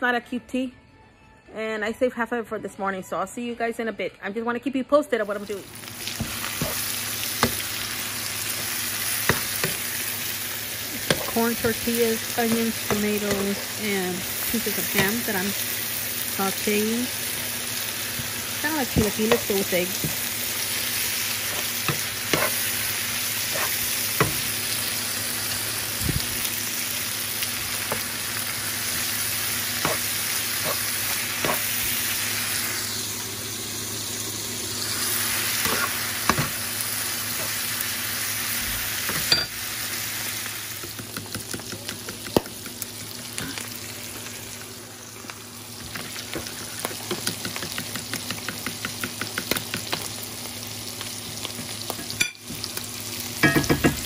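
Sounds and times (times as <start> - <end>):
food sizzling in a skillet: 5.2 - 54.0
utensil knocking against pan: 53.4 - 54.0.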